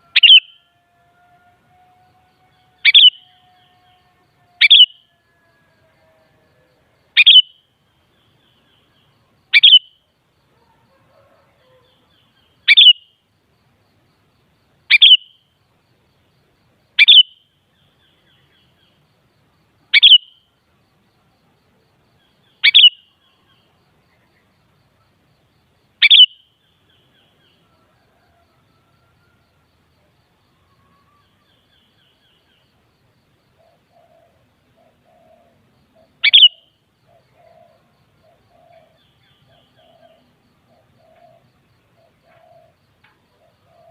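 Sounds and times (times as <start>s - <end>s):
bird short sharp calls: 0.2s - 0.6s, 36.2s - 36.6s.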